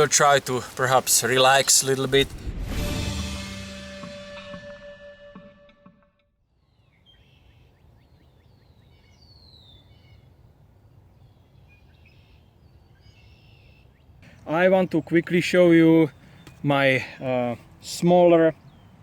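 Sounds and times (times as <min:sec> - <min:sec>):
birds chirping: 0:00.0 - 0:02.4, 0:06.7 - 0:19.0
background music: 0:01.9 - 0:06.2.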